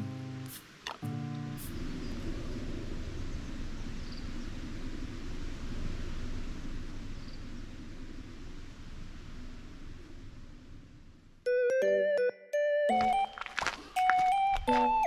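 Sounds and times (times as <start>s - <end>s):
low rumbling background noise: 0.0s - 11.5s.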